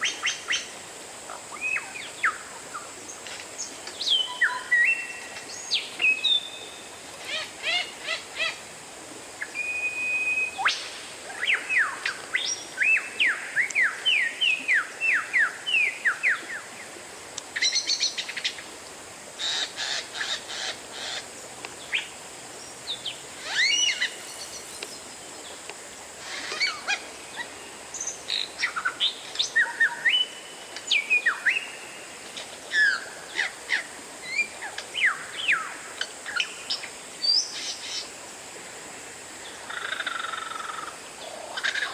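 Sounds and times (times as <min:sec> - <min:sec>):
bird singing whistled notes: 0:04.0 - 0:06.9, 0:09.5 - 0:10.8, 0:23.0 - 0:25.0.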